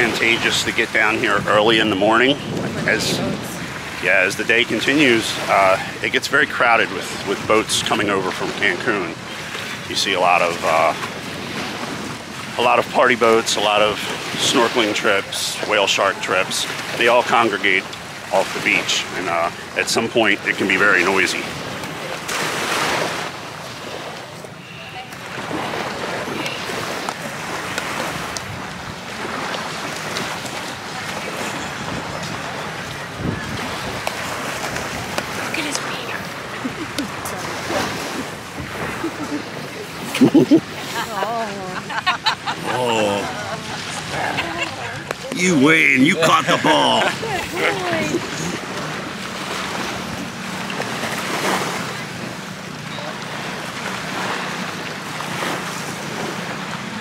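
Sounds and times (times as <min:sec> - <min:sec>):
wind buffeting microphone: 0:00.0 - 0:06.0, 0:10.9 - 0:13.0, 0:25.4 - 0:40.8
sea waves on sandy beach: 0:00.0 - 0:57.0.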